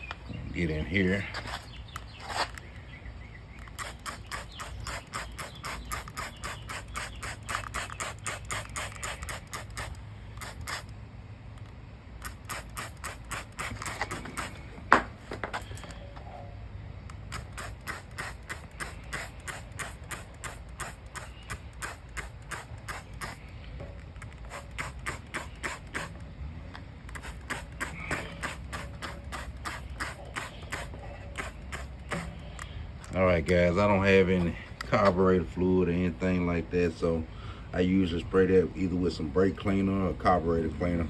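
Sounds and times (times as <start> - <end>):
trigger sprayer squirting: 3.5 - 15.0, 17.0 - 33.2.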